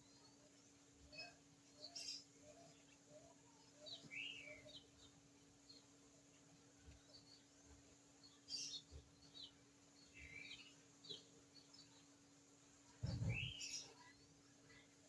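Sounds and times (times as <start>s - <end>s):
small birds chirping: 0.0s - 15.0s
low thump and rustle: 13.0s - 13.6s.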